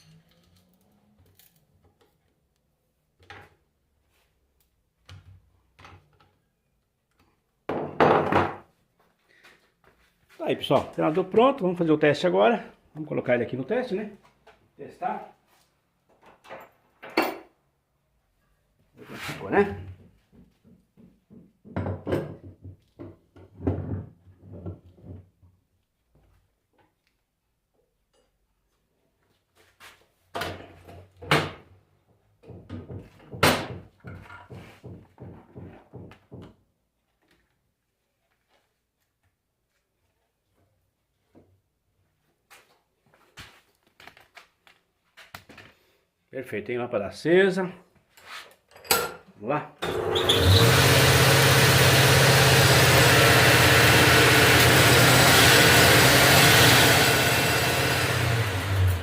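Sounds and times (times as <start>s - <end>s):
clunks and knocks of handling: 19.9s - 25.4s, 32.4s - 36.6s.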